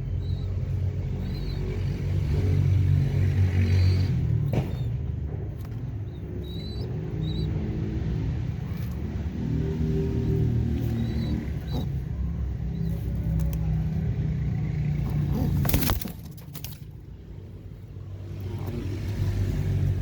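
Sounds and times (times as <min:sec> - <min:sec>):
pigeons cooing: 0:05.7 - 0:16.7.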